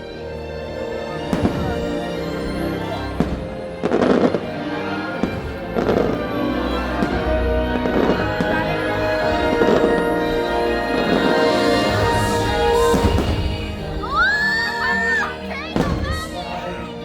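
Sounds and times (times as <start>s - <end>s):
fireworks bursting with crackle: 1.3s - 2.5s, 3.1s - 4.4s, 6.9s - 14.4s, 15.7s - 16.7s.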